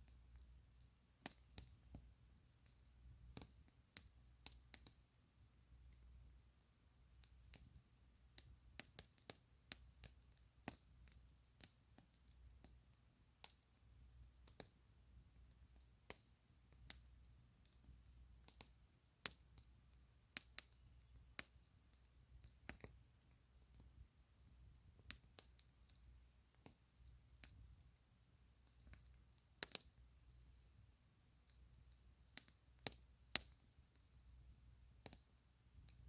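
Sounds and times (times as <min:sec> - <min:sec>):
campfire crackling: 0:00.0 - 0:36.0.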